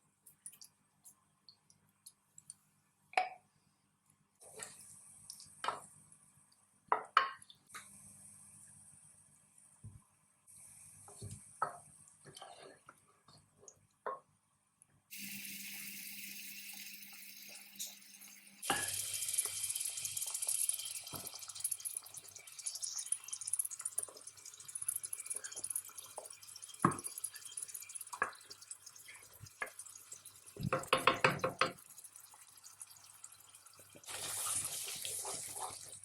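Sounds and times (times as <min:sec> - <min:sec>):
tap water running into sink: 0:15.1 - 0:36.0.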